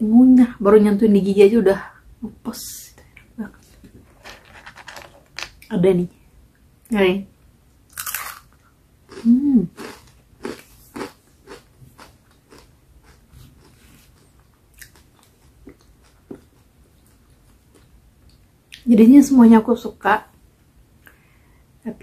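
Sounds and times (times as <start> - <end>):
crunchy chewing: 7.9 - 17.9.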